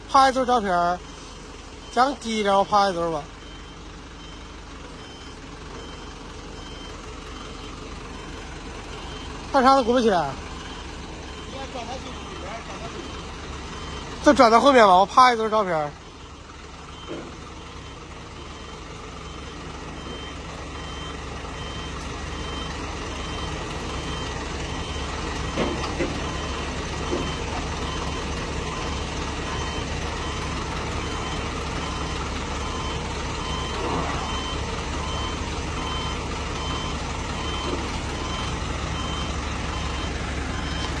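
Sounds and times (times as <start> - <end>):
diesel engine running: 0.0 - 41.0
high warning beeps: 9.0 - 15.2, 16.9 - 41.0.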